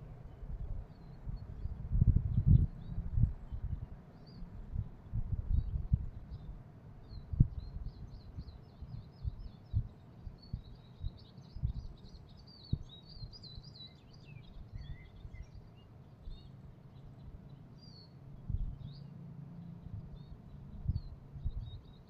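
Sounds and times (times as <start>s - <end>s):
low rumble: 0.0s - 9.9s, 18.4s - 21.9s
songbirds chirping: 0.0s - 22.0s
soft low thumps: 0.5s - 3.9s, 4.6s - 6.5s, 7.2s - 11.9s, 18.5s - 18.8s, 19.9s - 21.8s.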